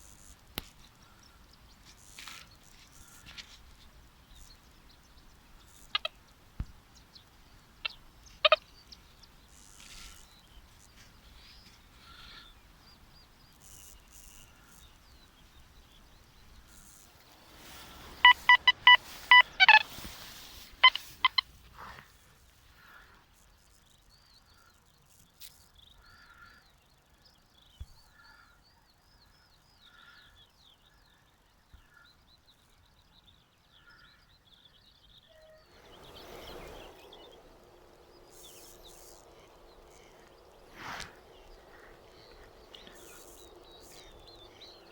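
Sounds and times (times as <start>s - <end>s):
faint bird chirps: 1.0s - 21.5s, 24.0s - 44.9s
metal detector beeps: 18.2s - 19.9s, 20.8s - 21.4s.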